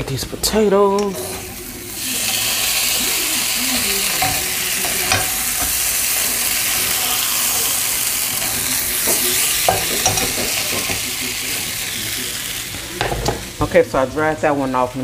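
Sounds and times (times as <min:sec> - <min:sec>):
potatoes sizzling in a pan: 0:00.0 - 0:15.0.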